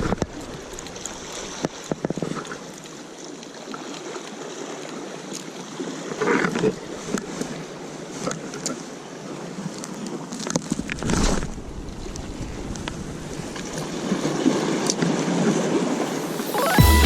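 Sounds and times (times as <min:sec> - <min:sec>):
sea waves washing onto shore: 0:00.0 - 0:17.0
wind on microphone: 0:10.8 - 0:14.6.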